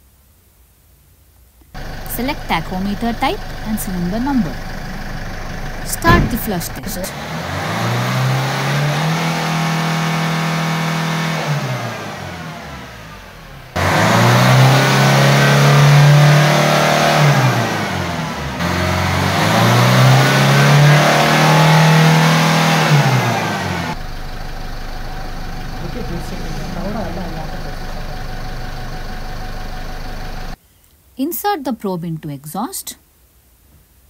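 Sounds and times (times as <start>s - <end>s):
diesel car engine revving: 1.8s - 30.6s.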